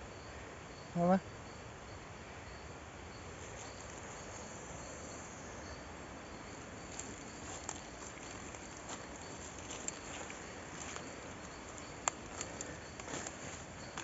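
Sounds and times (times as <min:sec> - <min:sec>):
insects chirping: 0:00.0 - 0:14.0
faint clicks: 0:09.8 - 0:13.4.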